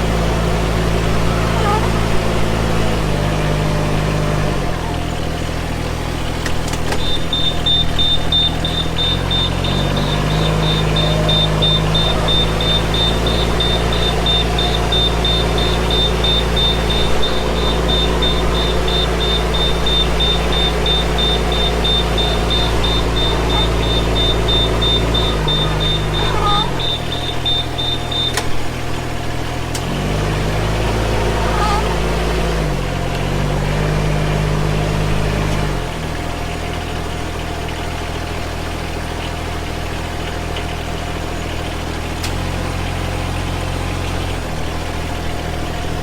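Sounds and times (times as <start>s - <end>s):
engine running: 0.0s - 46.0s
high-pitched warning buzzer beeping: 6.9s - 28.6s.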